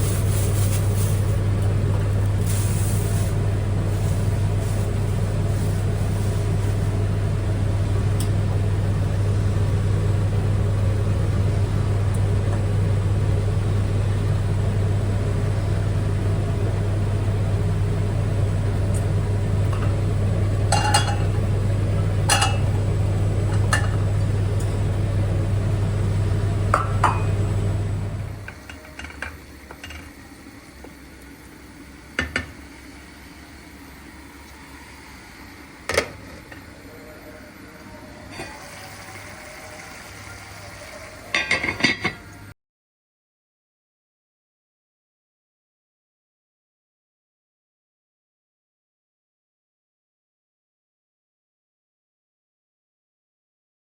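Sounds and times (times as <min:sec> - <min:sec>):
loud low motor hum: 0:00.0 - 0:42.5
dishes or glass clinking: 0:20.7 - 0:21.3, 0:41.4 - 0:42.2.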